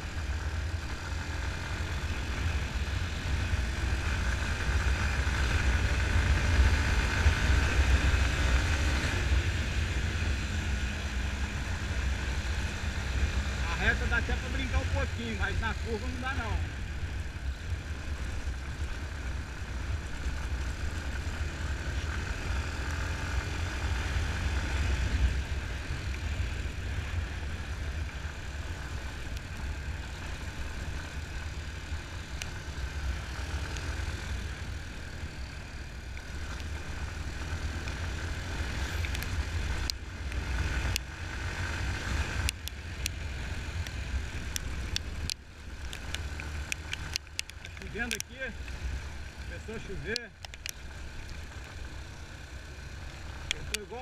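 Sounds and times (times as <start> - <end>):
motorcycle engine running: 0.0 - 54.0
sharp ticks: 39.0 - 41.1, 42.3 - 48.9, 49.8 - 51.7.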